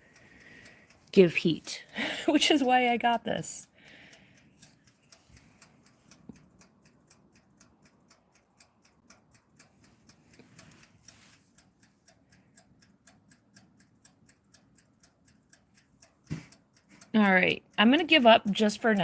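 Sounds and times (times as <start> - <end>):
wind-up timer ticking: 0.0 - 19.0.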